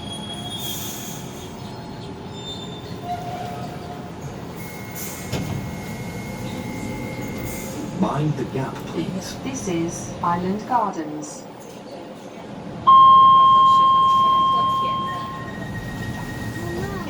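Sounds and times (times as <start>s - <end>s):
train wheels rumbling on track: 0.0s - 10.8s, 13.7s - 17.0s.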